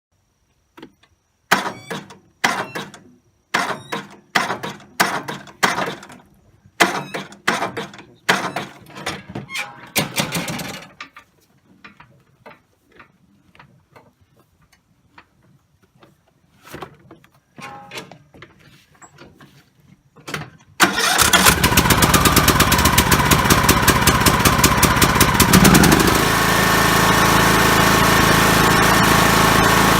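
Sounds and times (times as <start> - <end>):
lawn tractor clanking: 1.5 - 12.8, 17.6 - 18.3, 20.2 - 29.9.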